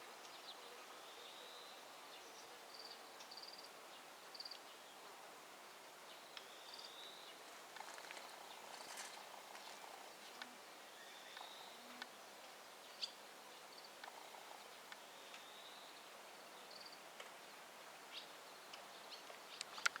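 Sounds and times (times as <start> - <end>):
distant birds chirping: 6.1 - 12.2.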